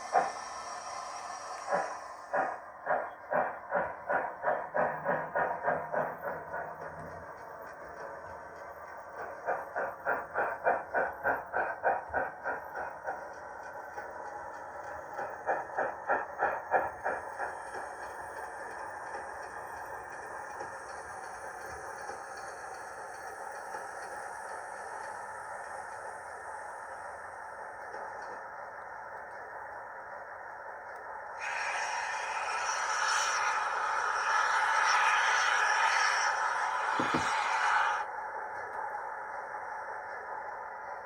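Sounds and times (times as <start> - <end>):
model steam hiss: 0.0 - 2.6, 31.4 - 38.0.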